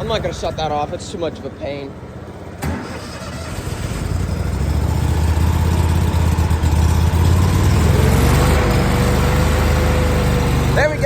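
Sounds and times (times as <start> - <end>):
lawnmower engine idling roughly: 3.6 - 11.0.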